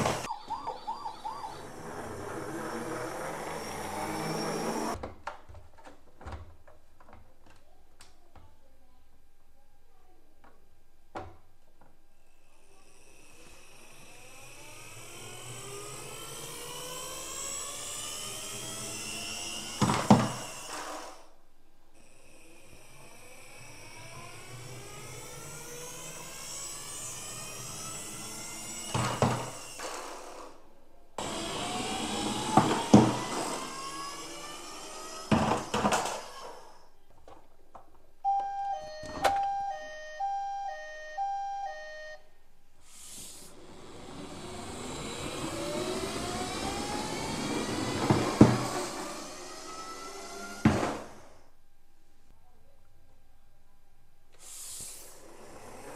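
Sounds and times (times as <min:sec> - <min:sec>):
toy friction motor whirring: 0:00.0 - 0:05.0, 0:12.4 - 0:21.4, 0:22.0 - 0:37.0, 0:42.9 - 0:51.5, 0:54.4 - 0:55.9
two-note electronic siren: 0:00.2 - 0:02.2, 0:38.3 - 0:42.3.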